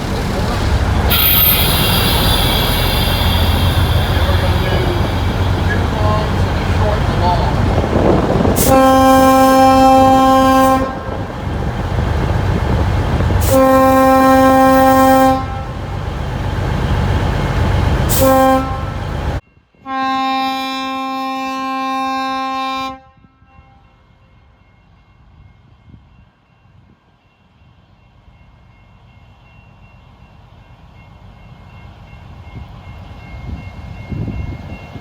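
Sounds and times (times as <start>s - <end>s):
diesel engine rumble: 0.0s - 19.4s
locomotive air horn blasts: 1.1s - 6.3s, 8.5s - 11.3s, 13.4s - 16.0s, 18.0s - 19.2s, 19.8s - 23.8s.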